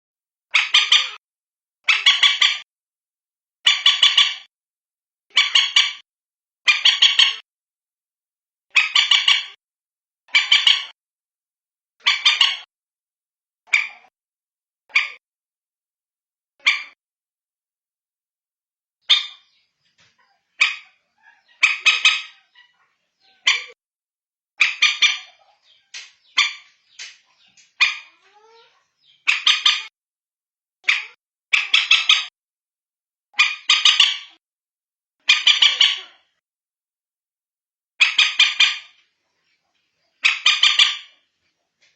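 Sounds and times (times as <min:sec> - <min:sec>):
moorhen harsh stuttering calls: 0:01.9 - 0:02.6, 0:03.6 - 0:04.5, 0:06.7 - 0:07.4, 0:08.7 - 0:09.6, 0:10.3 - 0:10.9, 0:12.0 - 0:12.7, 0:20.6 - 0:23.8, 0:24.6 - 0:29.9, 0:30.9 - 0:32.3, 0:33.4 - 0:34.4, 0:35.2 - 0:36.2, 0:38.0 - 0:38.9, 0:40.2 - 0:41.1.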